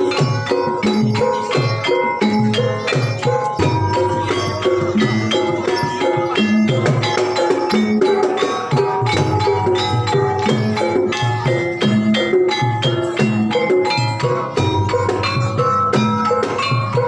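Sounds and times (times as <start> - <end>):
gamelan music: 0.0 - 17.0
tuned struck percussion: 0.0 - 17.0.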